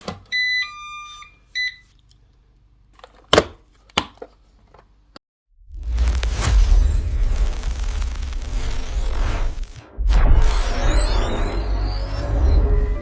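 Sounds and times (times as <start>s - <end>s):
loud bassy rushing noise: 5.7s - 13.0s.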